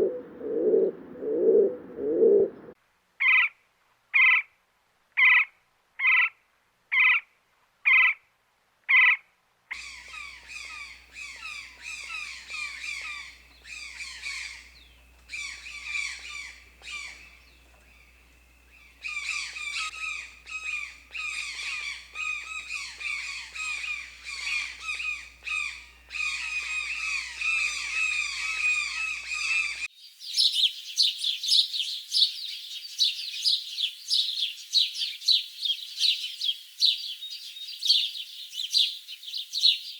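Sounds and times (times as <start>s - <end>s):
birds squawking harshly: 9.8s - 29.9s
birds chirping high-pitched: 9.8s - 39.9s.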